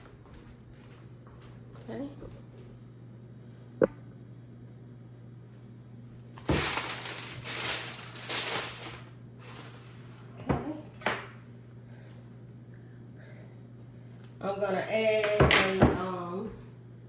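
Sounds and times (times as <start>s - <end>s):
crinkling rustle: 6.4s - 9.7s.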